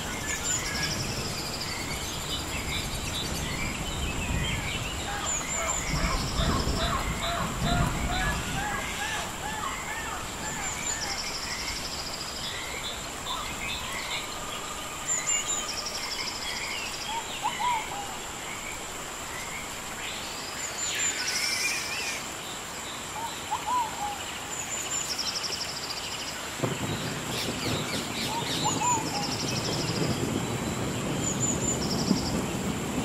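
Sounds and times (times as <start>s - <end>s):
birds chirping and calling: 0.0s - 14.5s
steady hiss: 0.0s - 33.0s.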